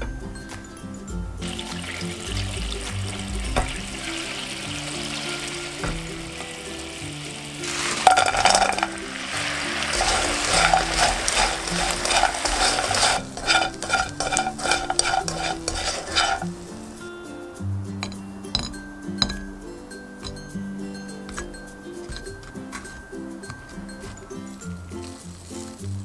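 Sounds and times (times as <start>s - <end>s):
soft background music: 0.0s - 26.0s
syrup sizzling in a frying pan: 1.4s - 17.2s.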